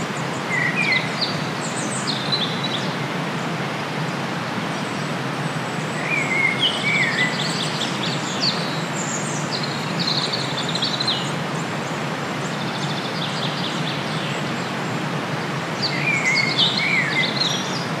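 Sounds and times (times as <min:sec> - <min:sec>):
wind: 0:00.0 - 0:18.0.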